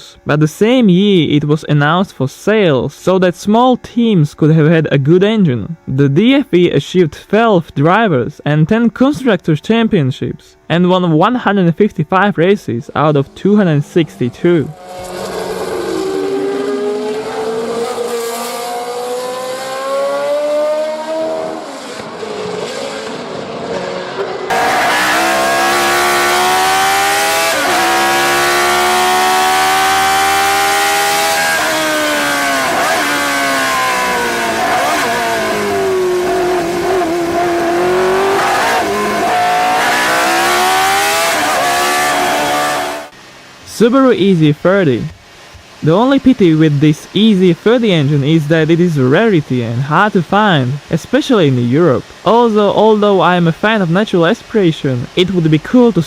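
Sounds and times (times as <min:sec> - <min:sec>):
racing engine revving hard: 0:14.1 - 0:43.2.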